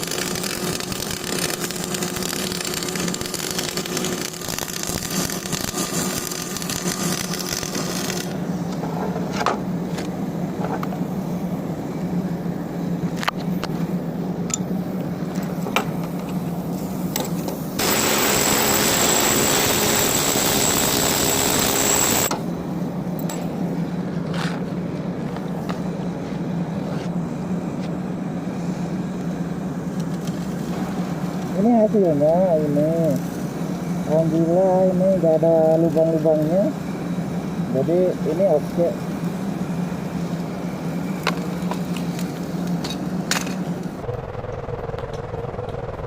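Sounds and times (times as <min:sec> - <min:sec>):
welding arc hissing and crackling: 0:00.0 - 0:08.4, 0:16.7 - 0:22.3, 0:30.4 - 0:36.7
steady engine hum: 0:00.0 - 0:46.0.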